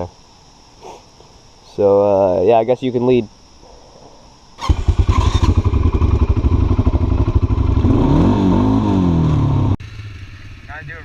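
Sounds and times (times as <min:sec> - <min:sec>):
atv engine revving: 0:04.6 - 0:11.0.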